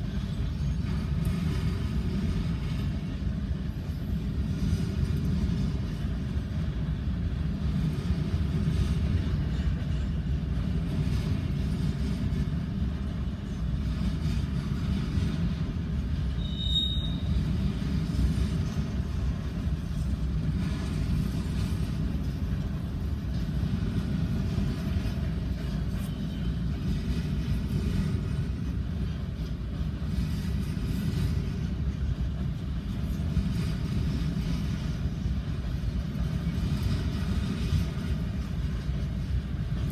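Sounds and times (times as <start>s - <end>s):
train wheels rumbling on rail: 0.0s - 39.9s
high-pitched wheel squeal: 16.4s - 17.4s.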